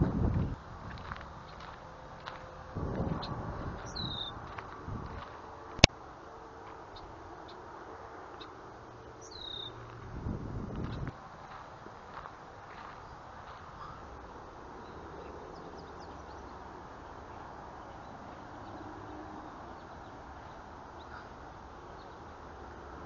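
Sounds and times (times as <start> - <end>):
outdoor background noise: 0.0 - 23.0
faint bird chirps: 3.2 - 4.4, 9.2 - 9.8.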